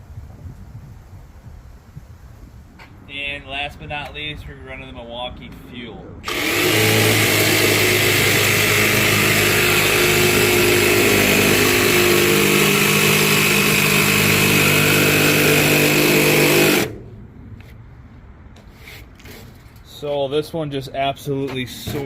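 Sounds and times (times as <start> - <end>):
jigsaw sawing: 6.3 - 17.0.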